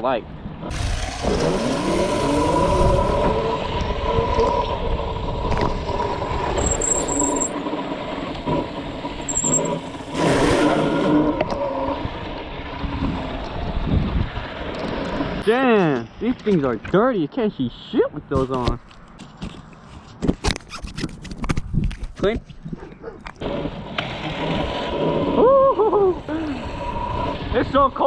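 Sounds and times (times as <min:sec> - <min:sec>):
mini bike engine revving: 0:00.7 - 0:04.8.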